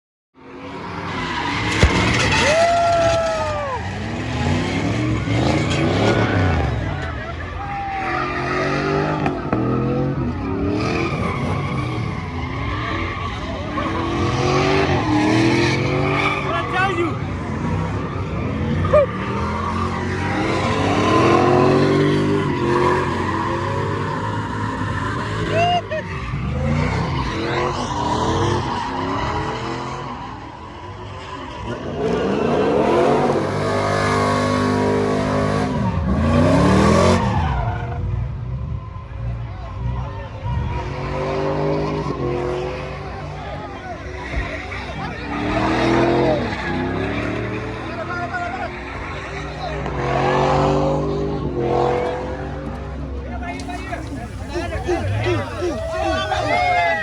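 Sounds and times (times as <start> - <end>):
tires spinning and squealing: 0.5 - 57.0
truck engines revving: 0.7 - 37.9, 53.5 - 57.0
truck engine revving: 1.2 - 7.0, 53.5 - 57.0
tyres squealing: 1.3 - 4.8, 53.6 - 57.0.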